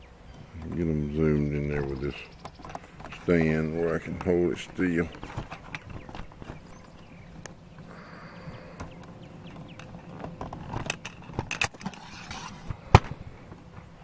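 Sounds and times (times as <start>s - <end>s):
faint bird chirps: 5.8s - 10.0s.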